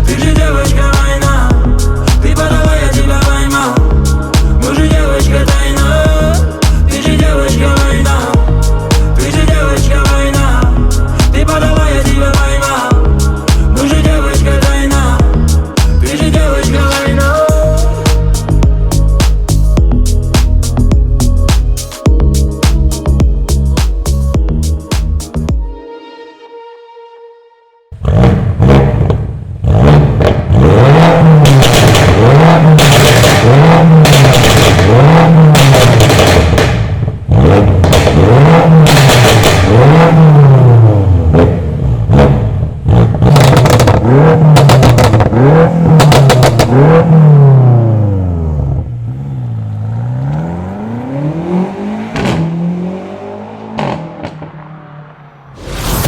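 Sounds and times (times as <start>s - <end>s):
car engine revving: 0.0s - 21.4s, 28.0s - 56.0s
exhaust pops: 28.0s - 40.4s, 41.3s - 47.1s.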